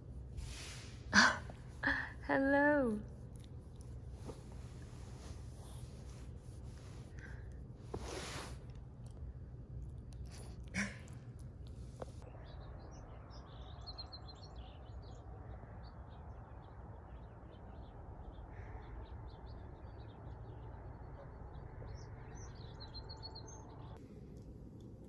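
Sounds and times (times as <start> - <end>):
low outdoor rumble: 0.0 - 25.0
songbirds chirping and twittering: 9.2 - 24.3.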